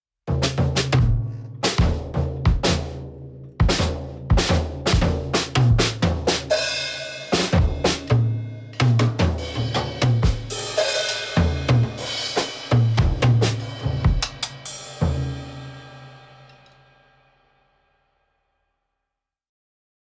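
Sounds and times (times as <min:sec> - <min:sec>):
bass drum and snare hits: 0:00.3 - 0:03.0, 0:03.6 - 0:06.6, 0:07.3 - 0:15.4
cymbals: 0:00.9 - 0:17.2
cymbal crash ringing: 0:09.4 - 0:17.1.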